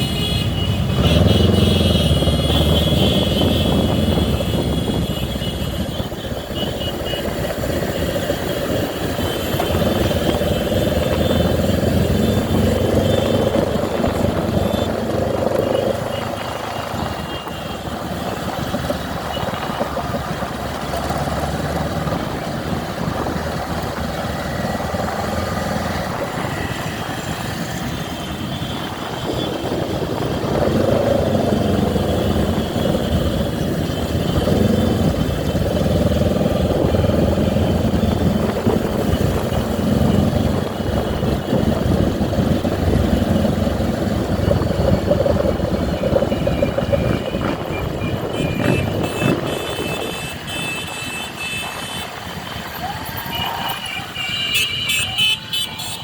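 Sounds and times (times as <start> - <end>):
motorcycle engines running: 0.0 - 56.0.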